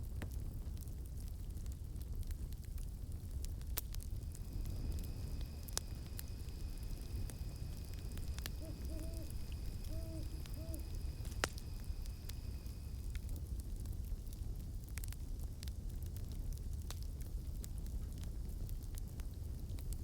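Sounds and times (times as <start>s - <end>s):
campfire crackling and popping: 0.0s - 20.0s
low rumble of flames: 0.0s - 20.0s
cicada drone: 4.1s - 13.3s
owl hooting: 4.4s - 12.8s.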